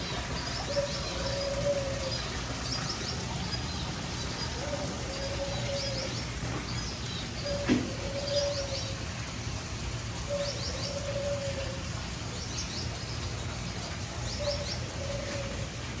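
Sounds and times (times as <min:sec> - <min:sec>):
birds chirping: 0:00.0 - 0:16.0
low cooing bird call: 0:00.1 - 0:09.1, 0:10.3 - 0:12.0, 0:14.4 - 0:16.0.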